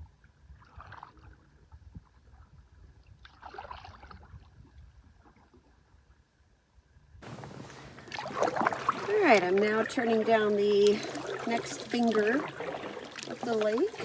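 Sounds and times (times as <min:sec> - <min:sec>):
quiet water sounds: 0:00.0 - 0:14.0
paddle splashing water: 0:07.2 - 0:14.0.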